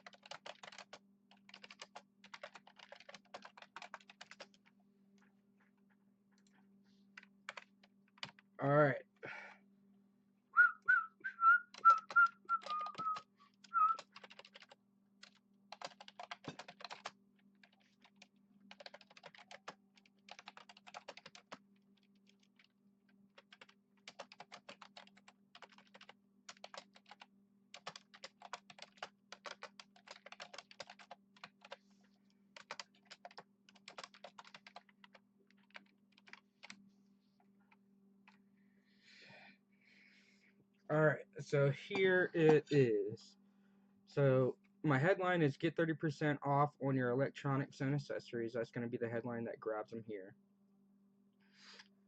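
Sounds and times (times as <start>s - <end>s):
typing on computer keyboard: 0.0s - 4.7s, 7.2s - 8.4s, 11.7s - 13.2s, 13.9s - 22.7s, 23.3s - 31.8s, 32.6s - 36.8s
faint steady hum: 0.0s - 52.0s
person whistling a tune: 10.6s - 14.0s.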